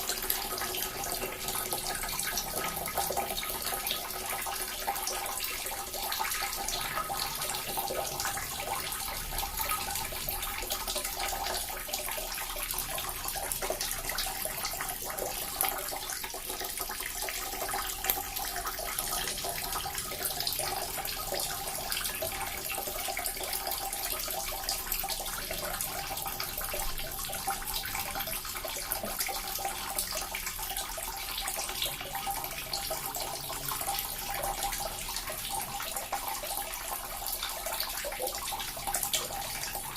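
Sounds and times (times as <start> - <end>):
water fountain trickling and splashing: 0.0 - 39.9.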